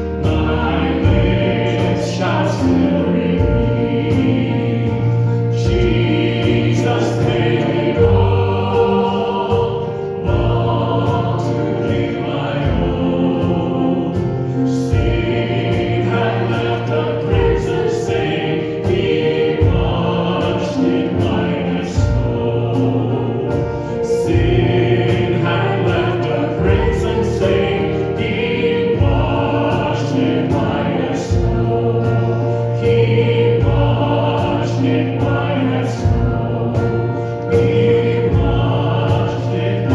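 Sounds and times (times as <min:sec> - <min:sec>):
group singing a hymn: 0:00.0 - 0:39.9
instrumental accompaniment with beat: 0:00.0 - 0:39.9.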